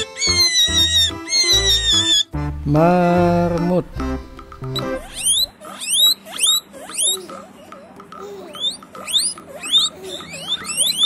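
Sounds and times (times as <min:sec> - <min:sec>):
guinea pigs wheeking: 0:00.0 - 0:02.4, 0:04.6 - 0:11.0.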